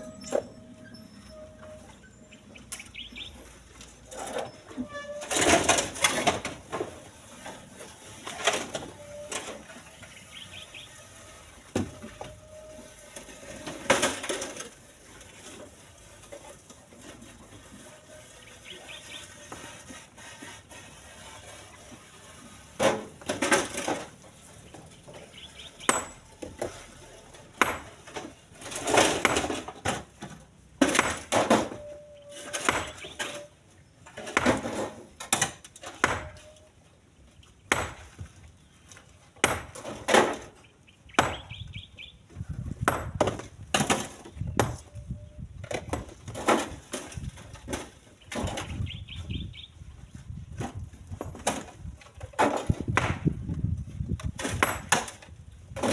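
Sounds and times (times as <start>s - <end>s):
stones clattering into truck bed: 22.8s - 24.2s, 27.4s - 31.9s, 42.8s - 44.8s, 45.7s - 48.9s, 50.6s - 53.6s, 54.2s - 55.9s.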